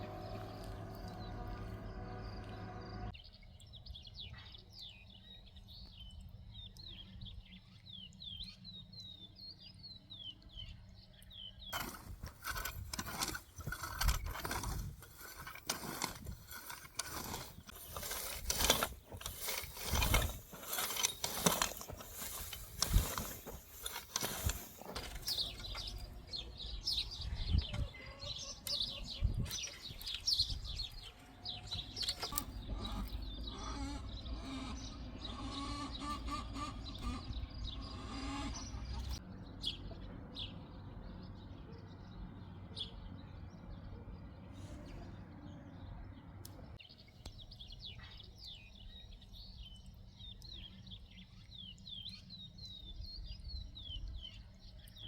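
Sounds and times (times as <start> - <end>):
small birds chirping: 0.0 - 55.0
close clicks knocks and scraping: 11.7 - 26.0, 31.7 - 33.2.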